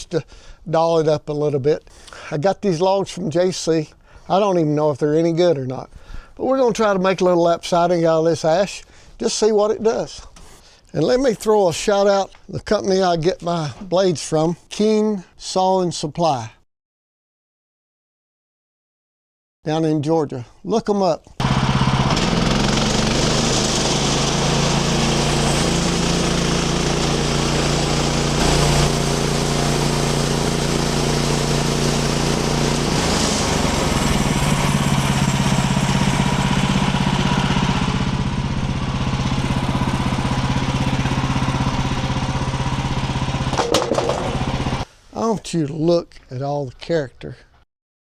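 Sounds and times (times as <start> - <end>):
bandsaw sawmill sawing log: 21.4 - 44.9.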